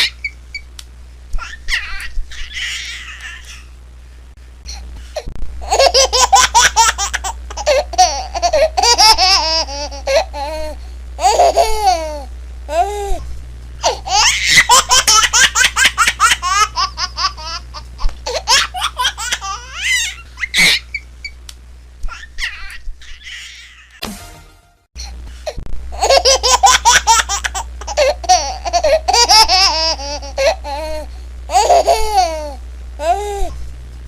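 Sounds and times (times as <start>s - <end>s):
steady low hum: 0.0s - 34.0s
baby laughing: 1.4s - 3.7s, 5.6s - 13.0s, 13.8s - 21.0s, 22.1s - 24.0s, 26.0s - 33.3s.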